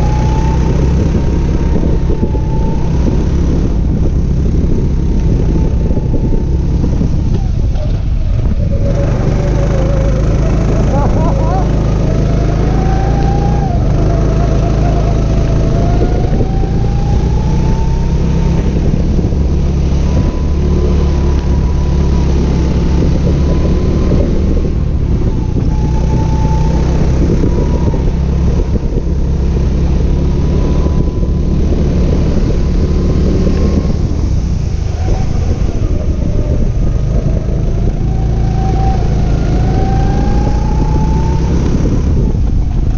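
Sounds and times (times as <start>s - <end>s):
go-kart engine accelerating: 0.0s - 42.9s
loud low rumble: 0.0s - 42.9s.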